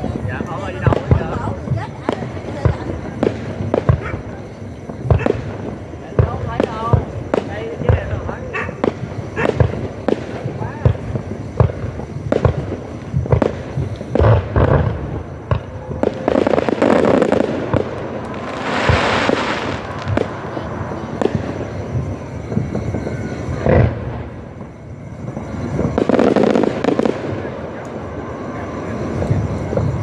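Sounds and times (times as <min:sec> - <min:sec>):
fireworks bangs and booms: 0:00.0 - 0:30.0
fireworks crackling: 0:00.0 - 0:30.0.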